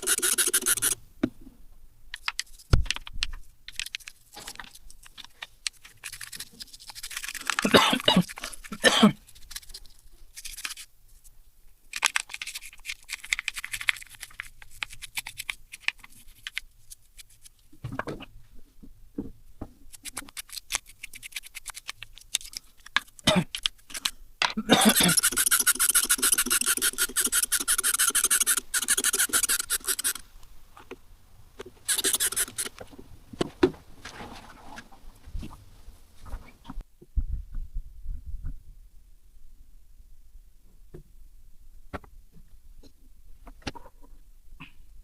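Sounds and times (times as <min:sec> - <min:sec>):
fast rasping or ratcheting: 0:00.0 - 0:01.0, 0:05.9 - 0:10.8, 0:24.8 - 0:30.2, 0:31.8 - 0:32.8
metal parts and tools clicking: 0:00.0 - 0:01.0, 0:19.9 - 0:30.2, 0:31.9 - 0:32.8.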